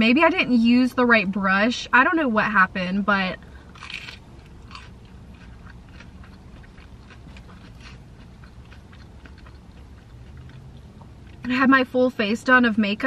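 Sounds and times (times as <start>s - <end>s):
steady low hum: 0.0s - 13.0s
person chewing with wet mouth clicks: 3.9s - 11.5s.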